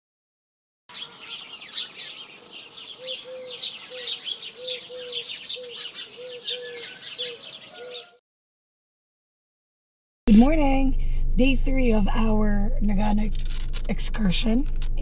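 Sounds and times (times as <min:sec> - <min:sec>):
small birds chirping and twittering: 0:00.9 - 0:08.2.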